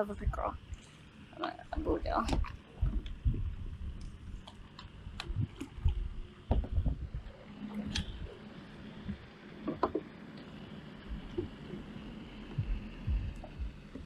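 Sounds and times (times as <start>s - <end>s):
low thumps: 1.8s - 4.3s, 5.1s - 7.3s, 12.5s - 14.0s.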